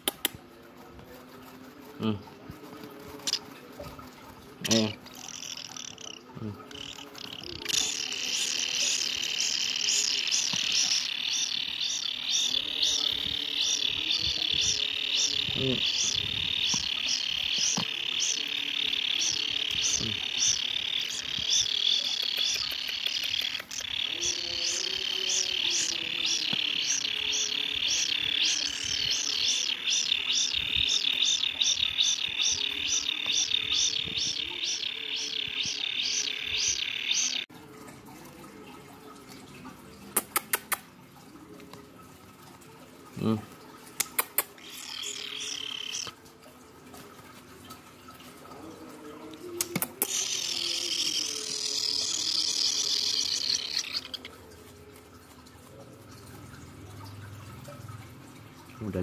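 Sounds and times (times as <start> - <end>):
baby kingfishers buzzing calls: 2.9 - 3.6, 4.6 - 37.5, 44.1 - 46.2, 49.6 - 54.4
steady high trill: 5.2 - 37.5, 44.6 - 46.1.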